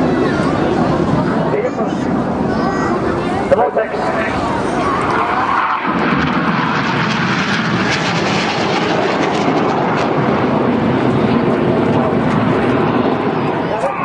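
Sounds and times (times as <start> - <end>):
jet aircraft flying past: 0.0 - 14.0.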